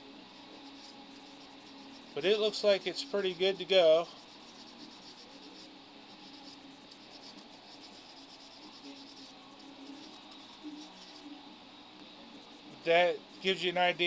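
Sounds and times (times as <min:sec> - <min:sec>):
faint rubbing on plastic: 0:00.3 - 0:11.5.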